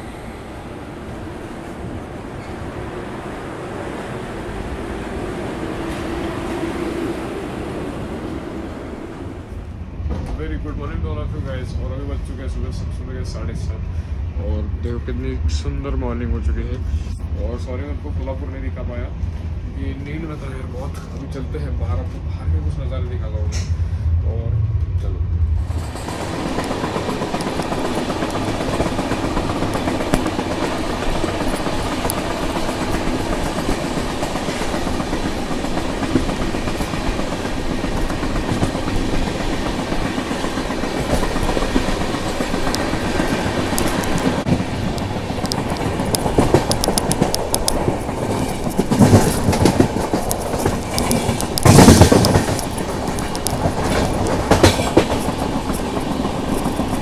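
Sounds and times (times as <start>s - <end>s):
train wheels clacking over rails: 25.6s - 57.0s.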